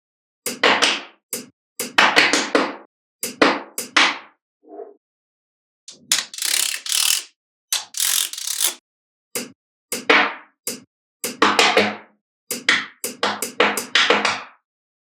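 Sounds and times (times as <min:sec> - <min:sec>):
magnetic balls clicking together: 0:05.9 - 0:08.8.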